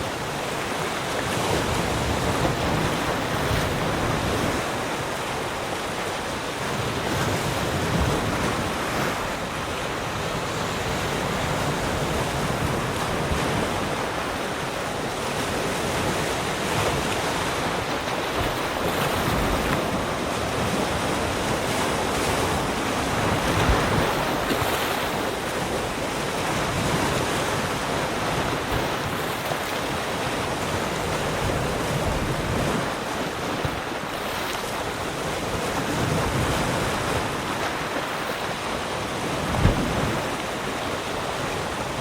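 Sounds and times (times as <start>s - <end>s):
waves breaking on shore: 0.0s - 42.0s
wind on microphone: 6.6s - 42.0s.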